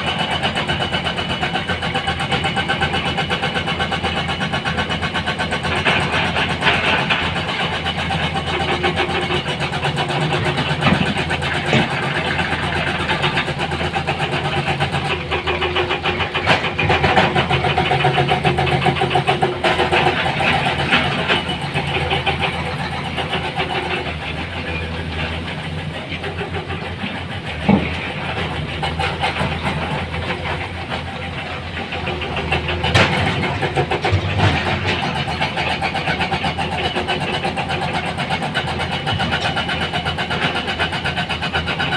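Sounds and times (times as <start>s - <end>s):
heavy diesel machinery engines: 0.0s - 41.9s.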